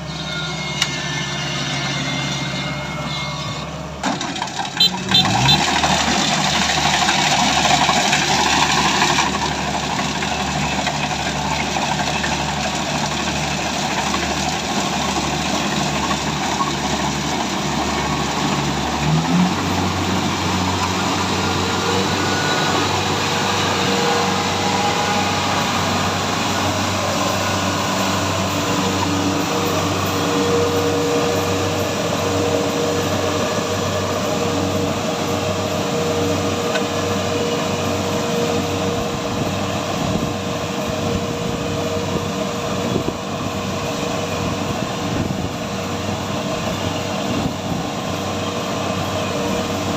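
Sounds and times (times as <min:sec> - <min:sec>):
harvesting machine engine running: 0:00.0 - 0:49.9.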